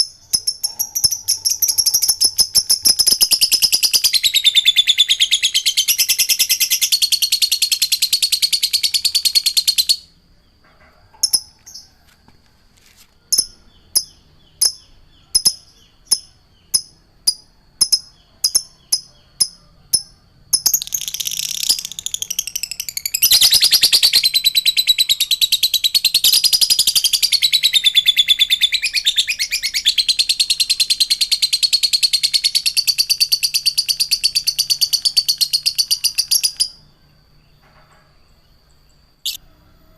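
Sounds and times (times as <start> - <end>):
songbird chattering: 13.4 - 36.8.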